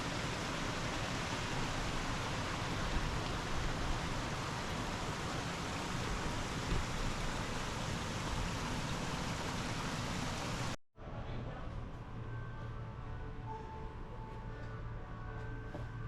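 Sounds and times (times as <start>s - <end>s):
steady rushing noise: 0.0s - 10.8s.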